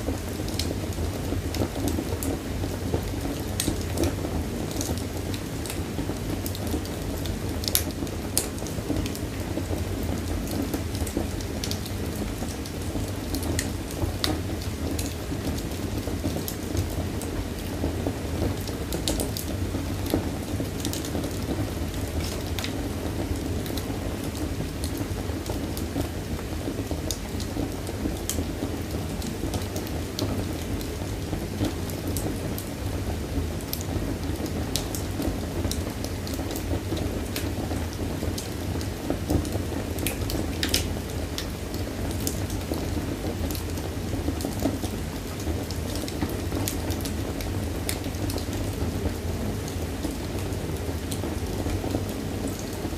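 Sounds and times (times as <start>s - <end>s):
wood fire crackling and popping: 0.0s - 52.9s.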